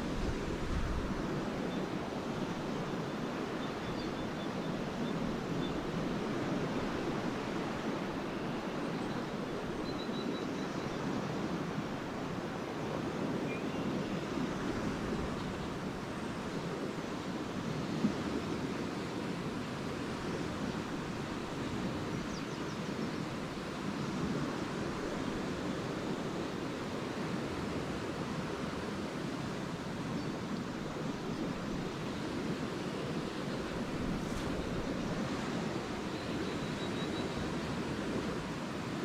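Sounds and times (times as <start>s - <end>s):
waves washing onto beach: 0.0s - 39.0s
faint bird chirps: 8.4s - 11.0s, 36.1s - 37.5s.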